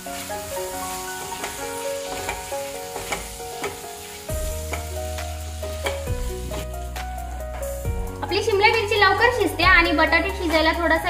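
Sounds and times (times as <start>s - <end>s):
potatoes sizzling in oil: 0.0s - 9.6s
spatula knocking and scraping pan: 1.3s - 5.0s, 5.8s - 6.7s.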